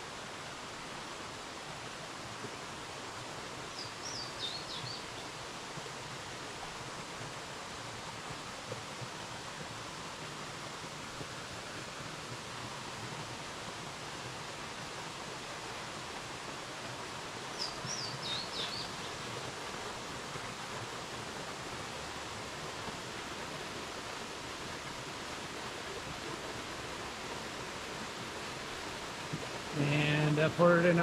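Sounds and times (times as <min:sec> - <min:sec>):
cascading water rushing: 0:00.0 - 0:31.0
bird chirping: 0:17.6 - 0:19.2.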